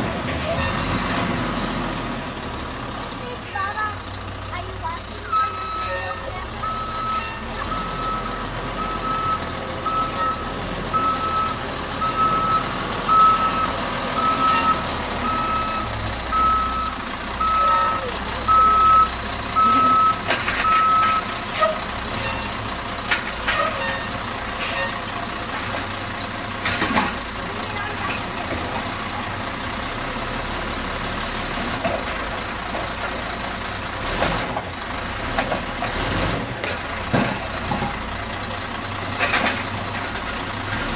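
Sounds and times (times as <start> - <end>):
garbage truck engine running: 0.0 - 40.9
reversing alarm beeping: 5.2 - 21.3.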